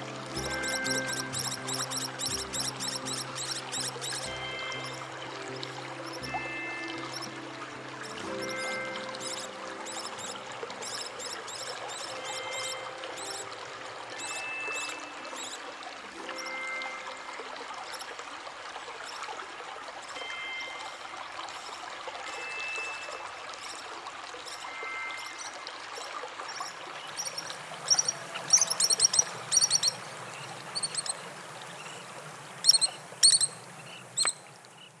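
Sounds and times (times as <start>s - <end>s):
kingfisher chirping: 0.4s - 13.5s, 26.6s - 35.0s.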